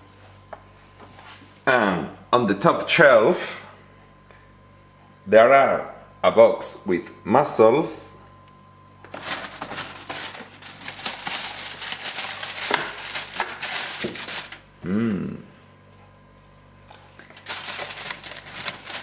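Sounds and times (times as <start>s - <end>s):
plastic packaging crinkling: 9.1s - 14.7s, 16.9s - 19.0s.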